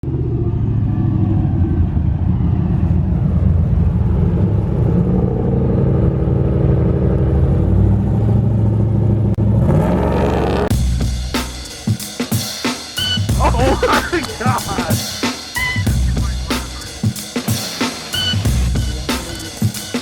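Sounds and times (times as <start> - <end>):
truck engine rumbling: 15.8 - 17.0.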